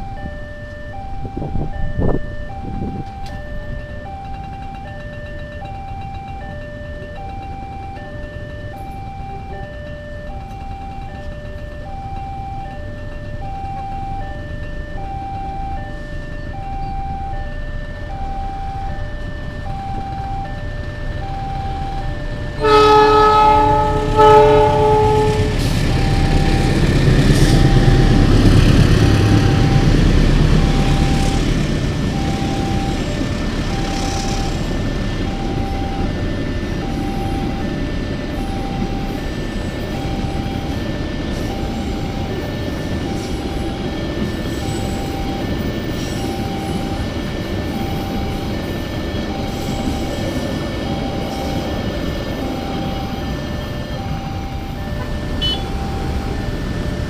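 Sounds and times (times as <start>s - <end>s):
freight train rumble and clatter: 0.0s - 57.0s
level crossing alarm tone: 0.0s - 57.0s
locomotive horn blasts: 22.6s - 31.5s, 53.8s - 56.4s.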